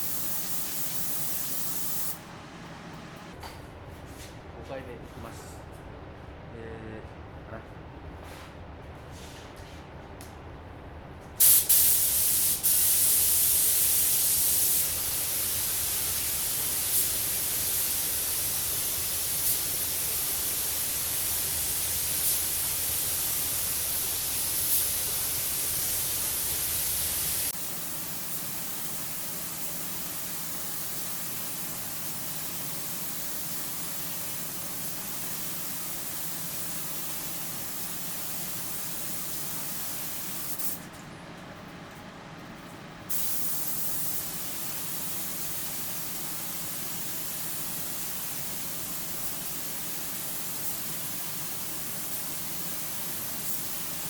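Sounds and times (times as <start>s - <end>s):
paint spray gun hissing: 0.0s - 2.2s, 11.4s - 40.8s, 43.1s - 54.0s.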